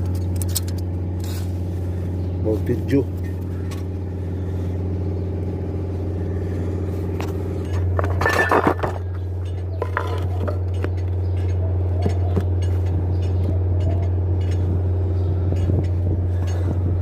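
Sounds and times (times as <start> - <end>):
low engine hum: 0.0 - 17.0
metallic clinks and clatter: 7.6 - 14.7.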